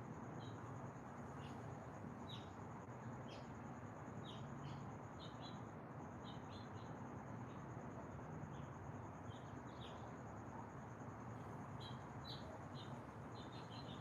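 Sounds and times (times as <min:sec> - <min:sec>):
small birds chirping: 0:01.3 - 0:02.6, 0:03.2 - 0:03.5, 0:04.1 - 0:07.7, 0:08.5 - 0:10.1, 0:11.7 - 0:14.0.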